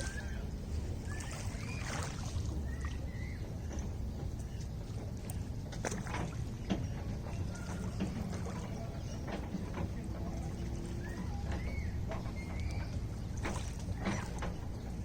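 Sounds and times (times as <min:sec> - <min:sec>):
small splashes and drips: 0:00.0 - 0:06.8, 0:12.4 - 0:15.0
lake water lapping: 0:00.0 - 0:15.0.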